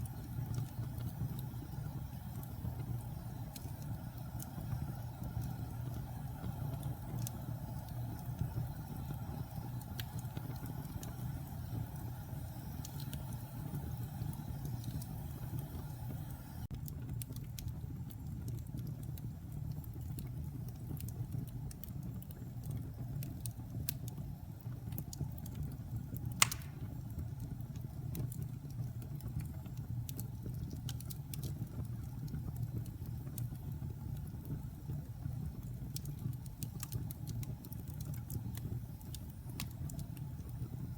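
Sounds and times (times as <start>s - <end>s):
fire flames rumbling: 0.0s - 40.9s
small fire crackles: 0.0s - 40.9s
log popping: 26.4s - 26.9s.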